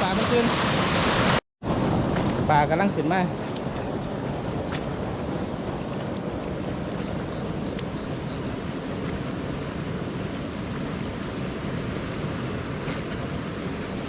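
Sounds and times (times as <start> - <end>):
runoff water rushing from culvert: 0.0 - 14.0.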